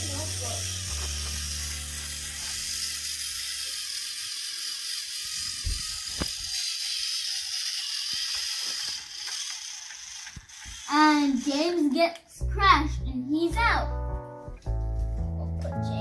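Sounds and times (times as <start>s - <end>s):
toy train motor whir: 0.0s - 12.5s
sharp plastic clacks: 8.0s - 10.9s.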